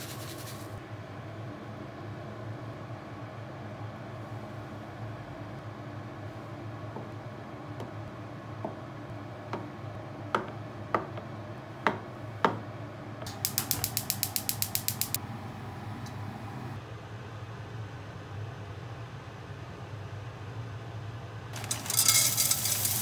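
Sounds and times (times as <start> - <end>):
gas stove igniter clicking: 13.3 - 15.2.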